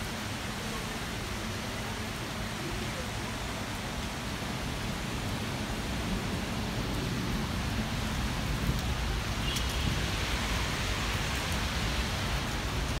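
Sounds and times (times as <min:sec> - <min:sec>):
rain pouring: 0:00.0 - 0:13.0.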